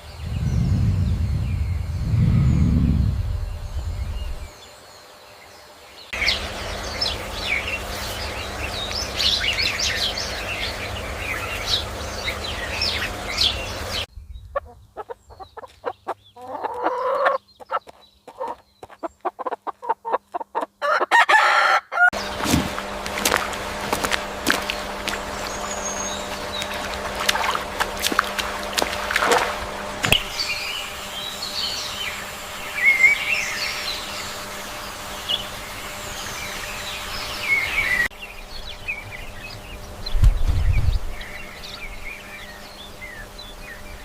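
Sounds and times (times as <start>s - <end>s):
chicks chirping: 6.2s - 20.7s, 22.2s - 34.3s
hens clucking: 14.6s - 21.1s
loud crow-like call: 20.8s - 22.1s.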